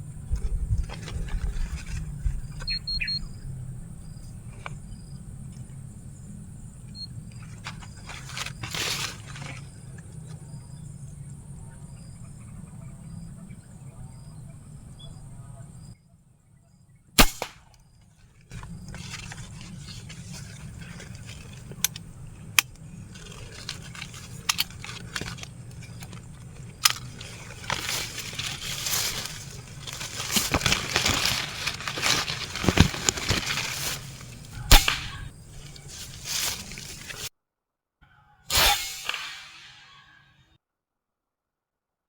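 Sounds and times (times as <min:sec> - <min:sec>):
steady rustling background: 0:00.0 - 0:12.7, 0:17.2 - 0:37.3
air rifle shots: 0:17.2 - 0:17.6, 0:34.6 - 0:35.3, 0:38.5 - 0:40.1.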